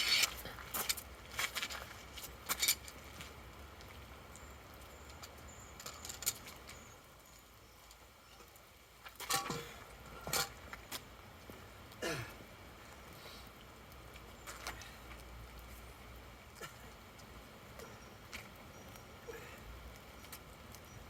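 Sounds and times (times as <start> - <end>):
gravel and metal clinks: 0.0 - 11.0, 17.7 - 21.0.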